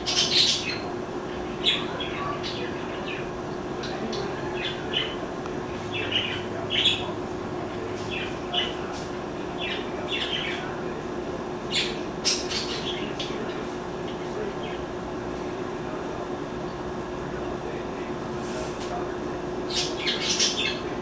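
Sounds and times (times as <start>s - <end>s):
low hum and hiss: 0.0s - 21.0s
small bird chirping: 19.7s - 20.9s.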